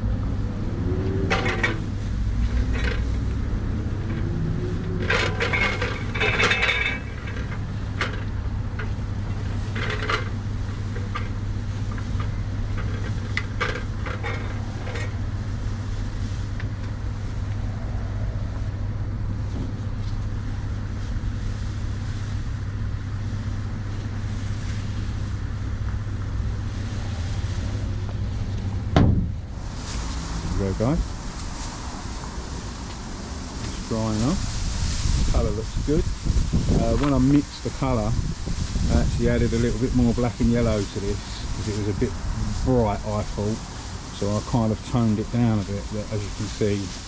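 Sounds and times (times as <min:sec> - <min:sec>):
low engine hum: 0:00.0 - 0:47.0
knocks and clatters: 0:01.2 - 0:03.4, 0:04.0 - 0:15.2.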